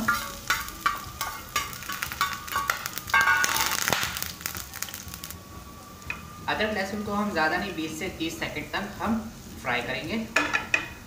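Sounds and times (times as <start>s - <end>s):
oil popping and crackling: 0.0s - 5.4s
food sizzling in hot oil: 0.0s - 11.0s.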